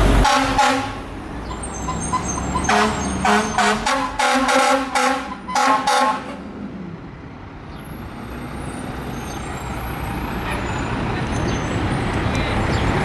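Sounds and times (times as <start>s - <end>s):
fire truck engine rumble: 0.0s - 13.0s
fire truck air horn blast: 0.1s - 1.1s, 1.9s - 6.4s.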